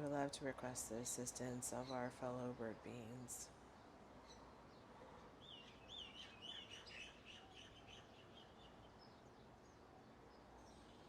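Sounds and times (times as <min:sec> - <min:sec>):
songbird chirping: 0:04.2 - 0:11.0.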